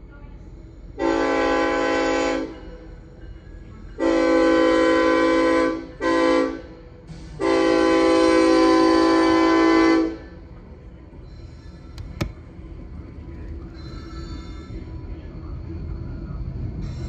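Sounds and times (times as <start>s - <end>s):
locomotive air horn blasts: 1.0s - 2.6s, 4.0s - 6.8s, 7.4s - 10.4s.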